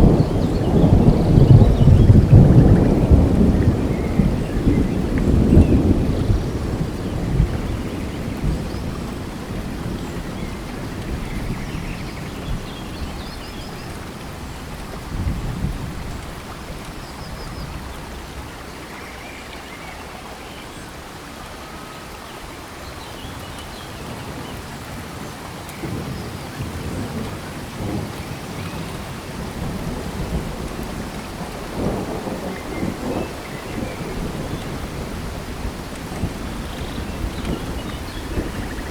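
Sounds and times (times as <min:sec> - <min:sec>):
thunder rumbling: 0:00.0 - 0:17.0, 0:25.8 - 0:38.9
steady rain: 0:00.0 - 0:38.9.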